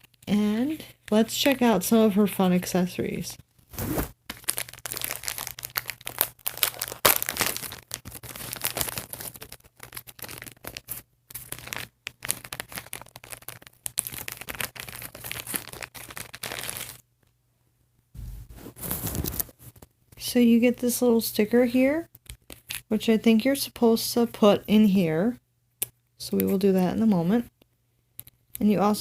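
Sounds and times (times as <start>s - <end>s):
plastic packaging crinkling: 3.7s - 17.0s, 18.6s - 19.8s.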